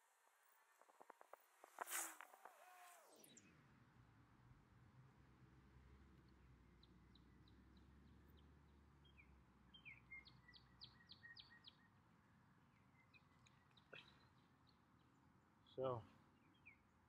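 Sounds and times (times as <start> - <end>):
songbird chirping: 5.8 - 17.0.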